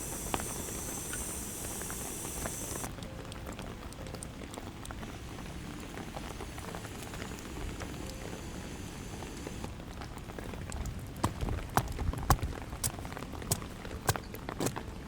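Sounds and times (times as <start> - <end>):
high hiss: 0.0 - 2.9, 5.0 - 9.7
heavy rain pattering: 0.0 - 15.0.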